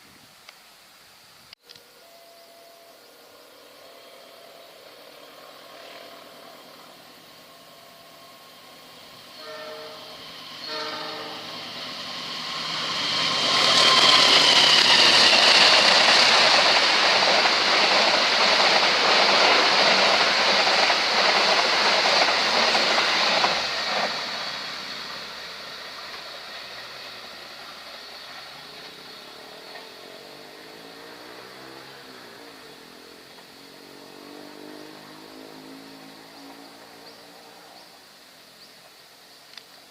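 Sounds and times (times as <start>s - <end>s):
train passing with rail noise: 0.0s - 39.9s
train horn blasts: 9.2s - 11.8s.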